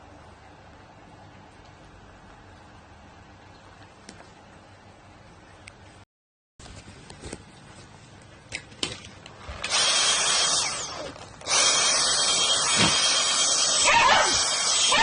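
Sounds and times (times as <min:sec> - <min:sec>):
vacuum cleaner running: 0:09.4 - 0:15.0.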